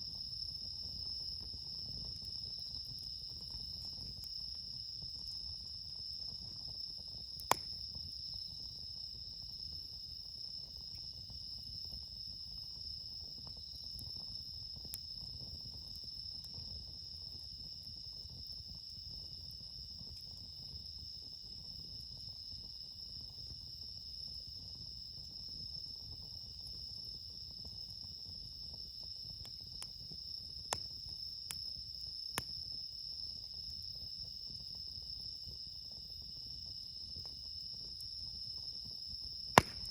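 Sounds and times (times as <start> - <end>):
crickets chirping: 0.0 - 39.9
campfire pops: 6.1 - 8.1, 29.4 - 32.6, 39.5 - 39.9.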